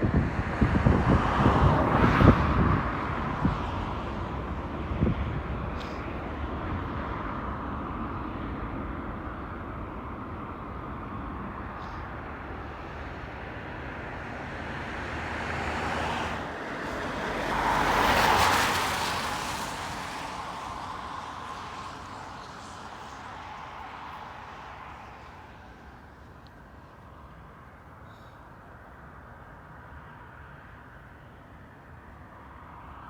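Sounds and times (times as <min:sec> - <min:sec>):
outdoor engine rumble: 0:00.0 - 0:18.0, 0:18.6 - 0:32.6
vehicle passing close by: 0:10.8 - 0:26.4.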